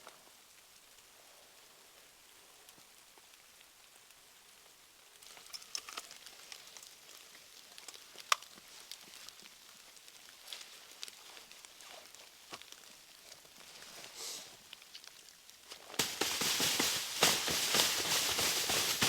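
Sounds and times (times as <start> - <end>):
wood fire crackling: 0.0 - 19.0
fire hiss: 12.8 - 14.9, 15.9 - 19.0
fire snap: 14.1 - 19.0.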